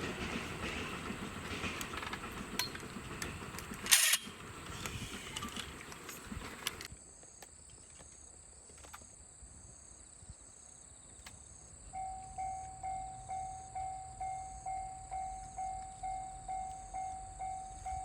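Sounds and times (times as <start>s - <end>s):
level-crossing alarm dinging: 12.0s - 18.0s.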